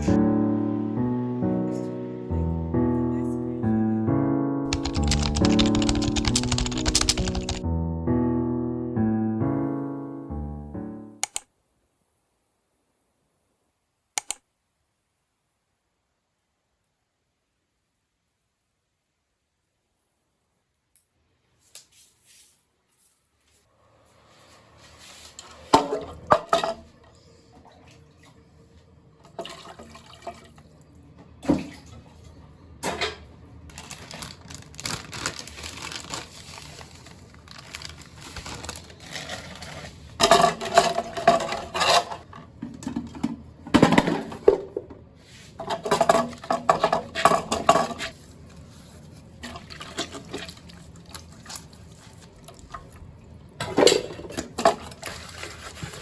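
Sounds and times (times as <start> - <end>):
dishes and pots clinking: 40.2 - 44.8, 45.6 - 48.1.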